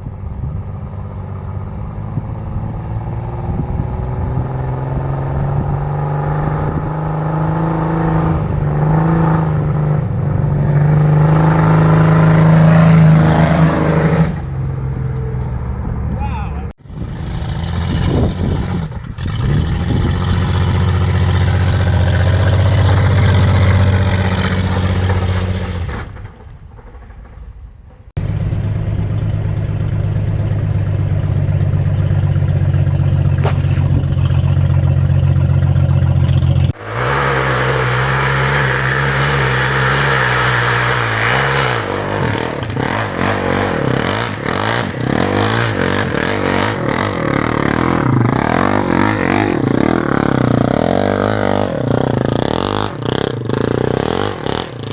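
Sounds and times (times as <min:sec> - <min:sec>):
rattling and clatter: 0:17.6 - 0:36.8
car engine running: 0:28.2 - 0:54.9.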